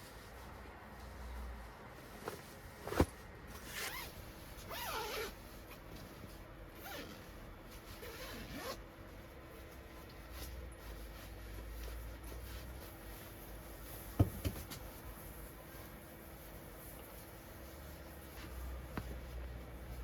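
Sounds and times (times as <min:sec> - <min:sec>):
zipper pulled: 0:02.8 - 0:05.4, 0:06.8 - 0:07.2, 0:08.0 - 0:08.8.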